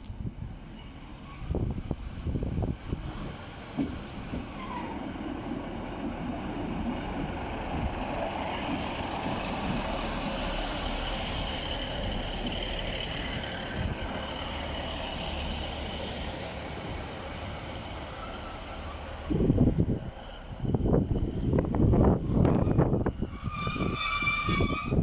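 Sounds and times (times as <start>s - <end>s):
high hiss from wheels: 0.0s - 22.2s
train running on rails: 0.0s - 25.0s.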